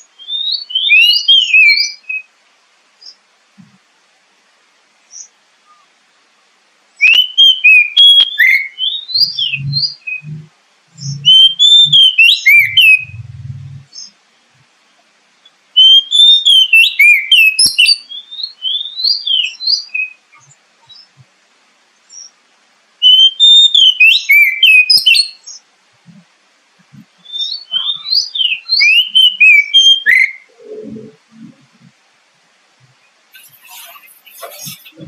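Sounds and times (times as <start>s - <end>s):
bird singing whistles and chirps: 0.2s - 2.3s, 7.0s - 14.2s, 15.8s - 21.1s, 23.0s - 25.6s, 27.2s - 31.2s, 33.4s - 35.0s.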